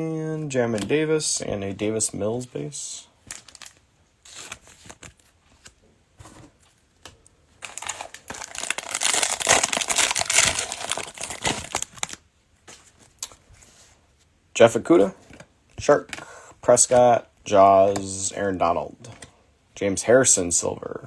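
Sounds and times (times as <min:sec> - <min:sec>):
foil wrapper crinkling: 0:03.3 - 0:05.8, 0:07.6 - 0:12.2.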